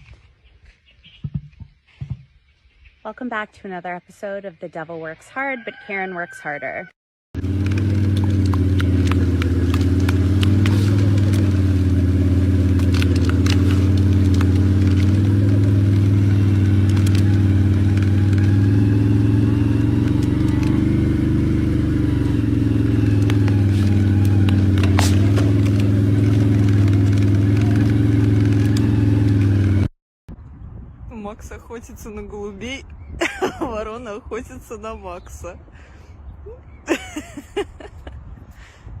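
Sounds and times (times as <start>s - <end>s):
motor humming: 7.4s - 29.8s.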